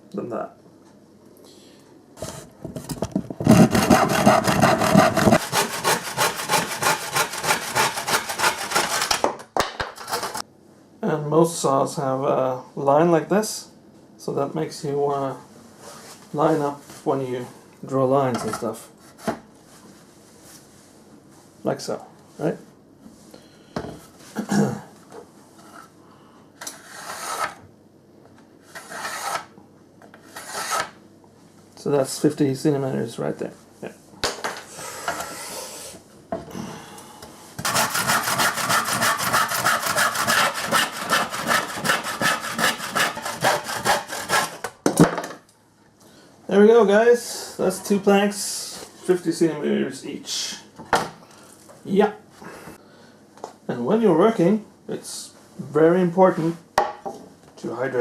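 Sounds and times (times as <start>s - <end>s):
saw cutting wooden plank: 3.4s - 9.3s, 37.6s - 44.6s.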